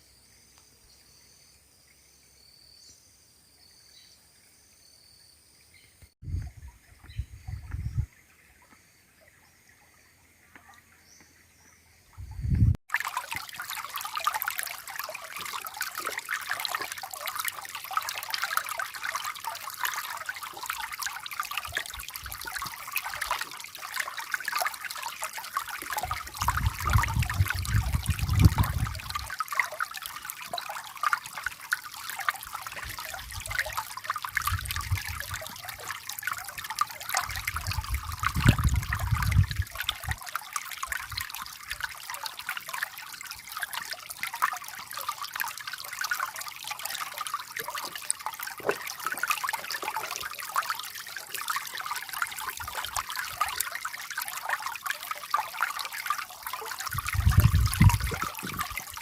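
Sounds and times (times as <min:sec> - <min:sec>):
water trickling: 0:06.0 - 0:59.0.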